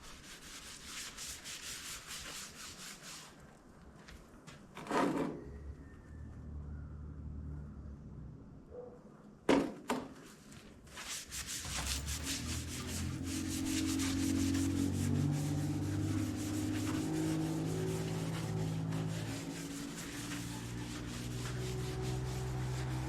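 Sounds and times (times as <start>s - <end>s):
rag scrubbing metal: 11.0s - 23.0s.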